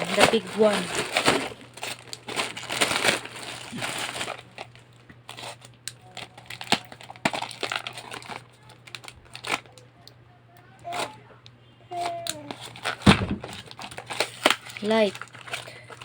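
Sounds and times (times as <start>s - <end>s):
packaging crinkling: 0.0s - 9.8s, 12.0s - 16.0s.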